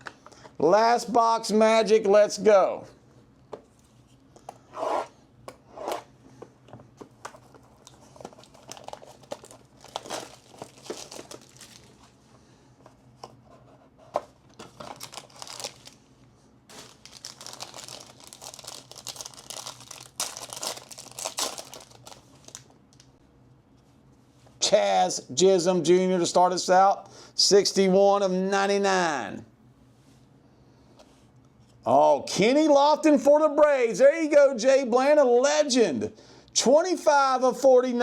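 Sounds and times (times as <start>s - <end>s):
plastic wrap crinkling and tearing: 7.4s - 12.1s, 14.6s - 16.0s, 16.7s - 23.1s.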